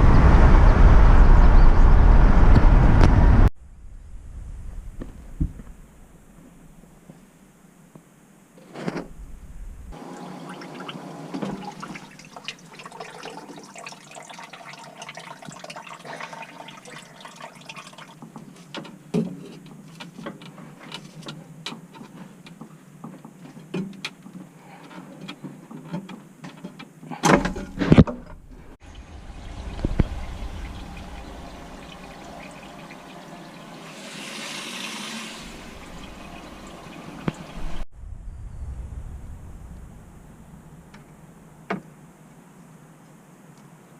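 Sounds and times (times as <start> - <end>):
water rushing through plumbing: 9.9 - 18.7, 28.6 - 37.9.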